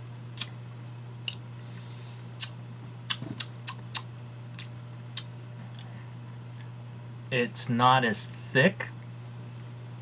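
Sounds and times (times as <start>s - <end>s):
steady low hum: 0.0s - 10.0s
mouth and lip smacks: 1.2s - 1.4s, 2.4s - 5.9s.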